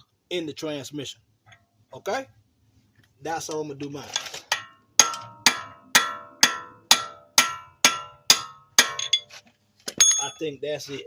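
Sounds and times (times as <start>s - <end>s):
hammer ringing on steel: 4.6s - 9.2s.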